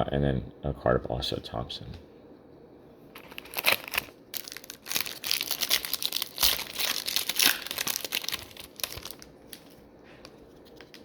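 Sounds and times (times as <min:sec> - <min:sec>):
card pack wrapper crinkling: 0:03.2 - 0:09.8.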